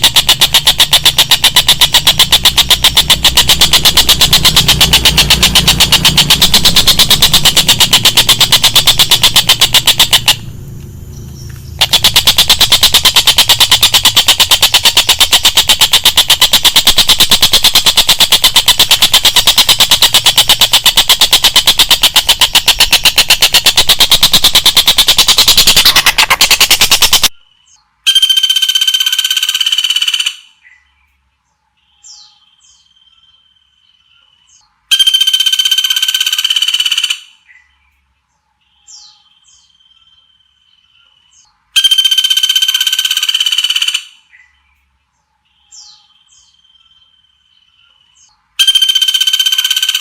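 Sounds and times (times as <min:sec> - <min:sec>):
low hum: 0:00.0 - 0:27.3
recorded songbird rattle: 0:00.0 - 0:27.4, 0:28.1 - 0:30.4, 0:34.9 - 0:37.3, 0:41.4 - 0:44.2, 0:48.2 - 0:50.0
rapid high-pitched bird trill: 0:00.0 - 0:30.6, 0:34.9 - 0:37.5, 0:41.4 - 0:44.4, 0:48.2 - 0:50.0.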